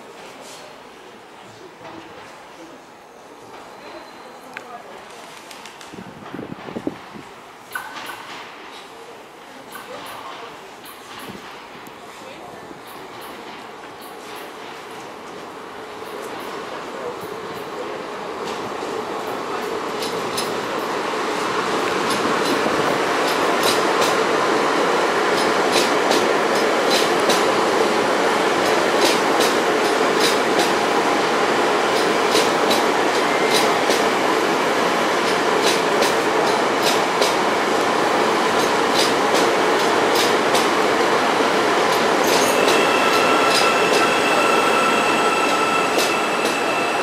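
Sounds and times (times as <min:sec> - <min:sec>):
train rumbling past: 0:03.0 - 0:47.0
wheels clicking on track: 0:21.8 - 0:24.2, 0:35.2 - 0:37.9, 0:38.5 - 0:40.8
high-pitched squeal: 0:42.4 - 0:47.0.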